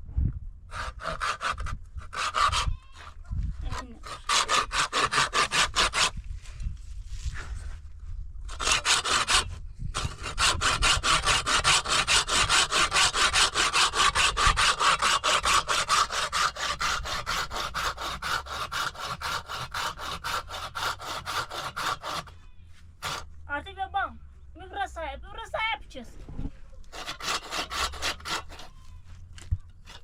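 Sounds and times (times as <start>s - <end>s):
hand saw cutting wood: 0.7s - 6.2s, 8.5s - 22.4s, 23.0s - 23.4s, 26.8s - 30.0s.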